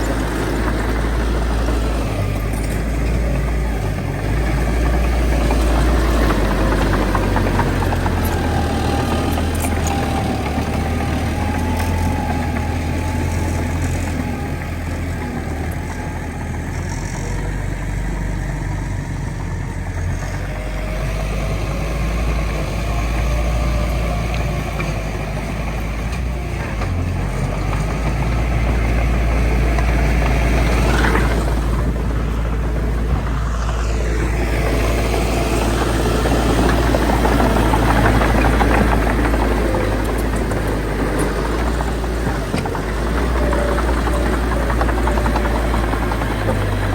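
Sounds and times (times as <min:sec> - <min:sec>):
heavy diesel engine droning: 0:00.0 - 0:46.9.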